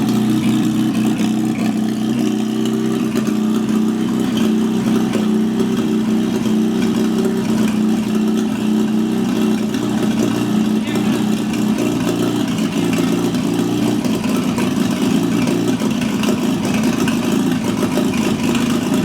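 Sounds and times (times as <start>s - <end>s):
four-cylinder engine running: 0.0s - 19.0s.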